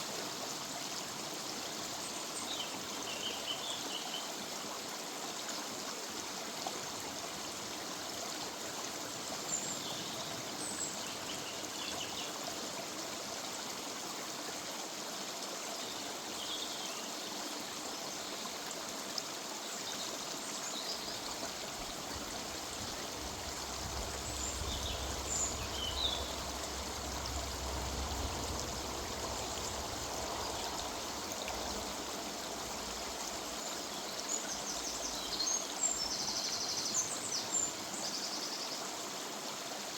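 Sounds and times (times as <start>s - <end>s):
river water rushing: 0.0s - 37.9s
low rumble: 22.4s - 31.6s.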